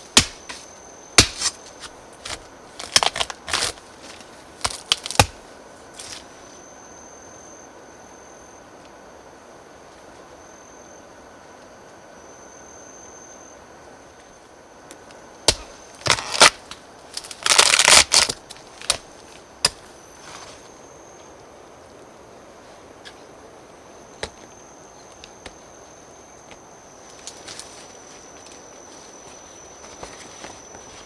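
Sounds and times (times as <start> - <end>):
dry wood cracking and snapping: 0.1 - 0.6, 1.2 - 5.4, 15.5 - 19.8.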